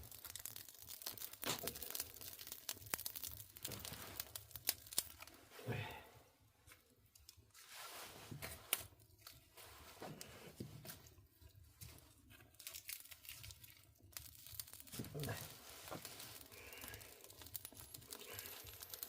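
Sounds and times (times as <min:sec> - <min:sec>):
dried fish being torn apart: 0:00.0 - 0:05.4, 0:11.8 - 0:19.0.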